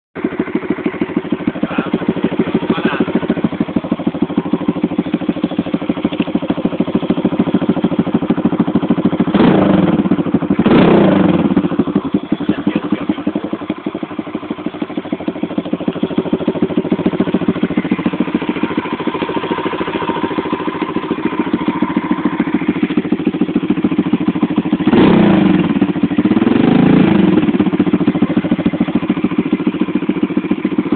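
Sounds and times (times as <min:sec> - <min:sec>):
motorbike engine idling: 0:00.2 - 0:30.9
engine throttle revs: 0:01.6 - 0:03.5, 0:09.2 - 0:13.5, 0:24.6 - 0:28.5.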